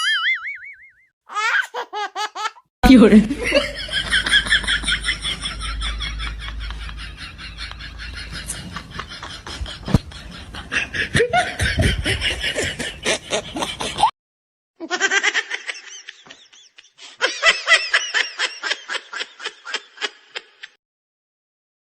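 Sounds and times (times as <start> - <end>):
high-pitched laughter: 10.7 - 14.1, 14.8 - 20.8.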